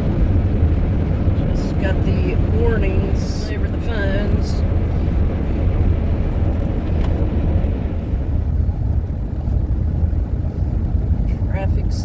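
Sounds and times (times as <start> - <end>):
road and engine rumble in car cabin: 0.0 - 12.0.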